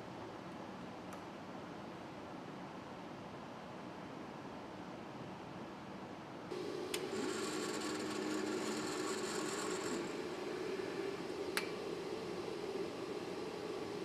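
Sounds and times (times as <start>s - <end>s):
higher whirring: 6.5s - 14.0s
machinery humming and whirring: 6.5s - 14.0s.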